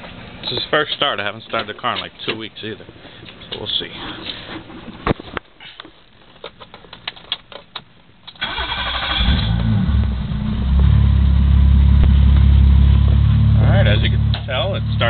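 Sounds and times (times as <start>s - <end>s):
car engine idling: 8.4s - 15.0s.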